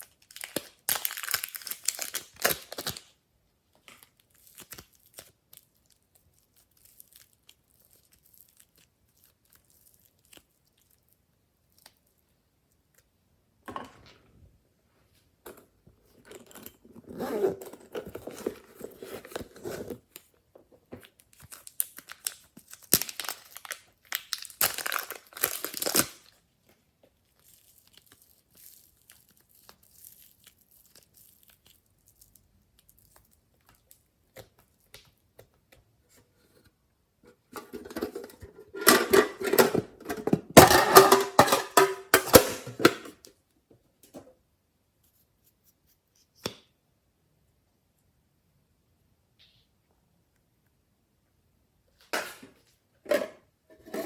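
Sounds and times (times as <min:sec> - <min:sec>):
slime crackling and tearing: 0:00.0 - 0:03.1, 0:04.1 - 0:12.3, 0:21.2 - 0:26.3, 0:27.2 - 0:35.1.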